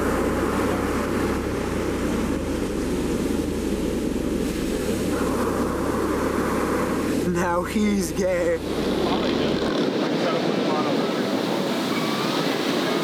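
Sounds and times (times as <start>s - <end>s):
ocean surf: 0.0s - 13.0s
wind buffeting microphone: 8.0s - 13.0s.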